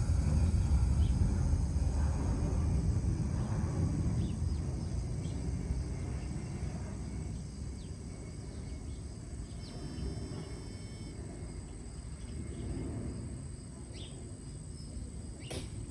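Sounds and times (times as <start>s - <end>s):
low rumble: 0.0s - 8.2s
high insect-like buzz: 4.2s - 12.6s
small birds chirping: 7.3s - 10.9s
high steady tone: 9.6s - 11.2s.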